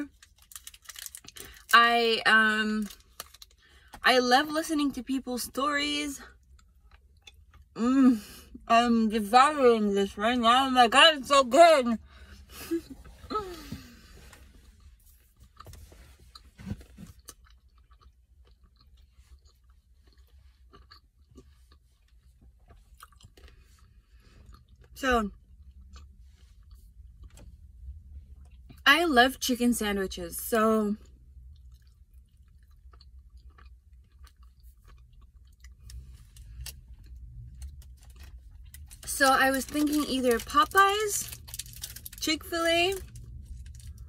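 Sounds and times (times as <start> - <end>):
low steady hum: 0.0 - 44.0
chewing chocolate bar: 16.3 - 27.4, 31.0 - 40.6.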